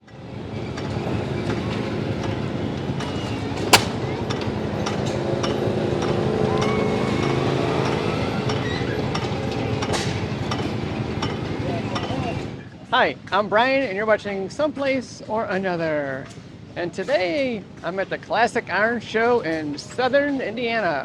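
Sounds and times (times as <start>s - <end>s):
sharp crack: 3.6s - 4.2s.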